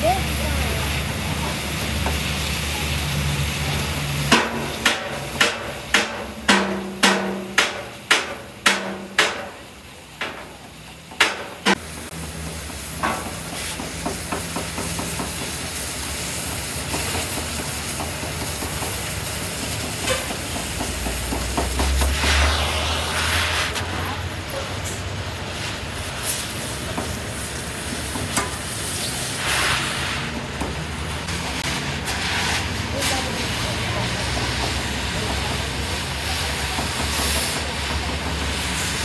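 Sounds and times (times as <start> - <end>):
hammer striking metal: 4.3 - 11.8.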